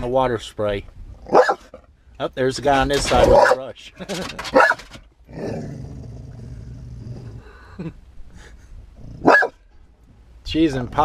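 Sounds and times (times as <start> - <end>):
dog barking: 1.3 - 1.7, 3.3 - 3.6, 4.5 - 4.8, 9.2 - 9.6
dog growling: 5.3 - 7.5.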